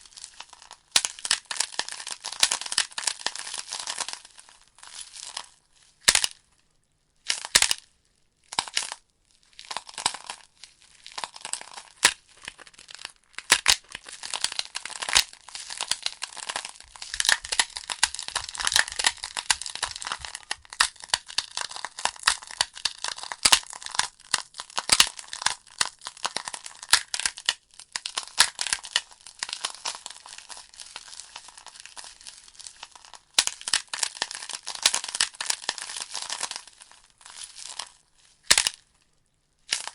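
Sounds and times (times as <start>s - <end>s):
wood fire crackling and popping: 13.4s - 23.8s.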